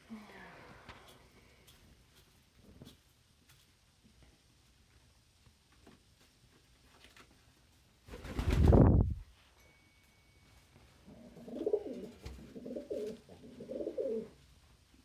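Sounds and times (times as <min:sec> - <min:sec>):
pigeon cooing: 0:11.1 - 0:14.4.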